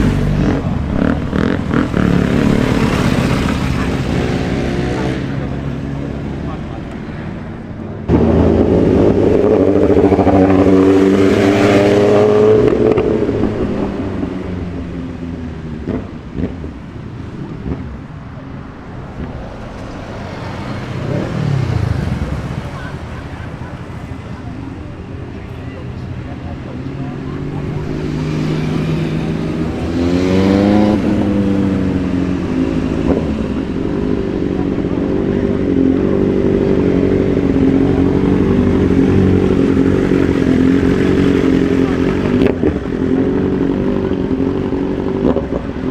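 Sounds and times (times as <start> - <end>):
motorcycle engine pulling away: 0.0 - 5.6
low street traffic: 0.0 - 45.9.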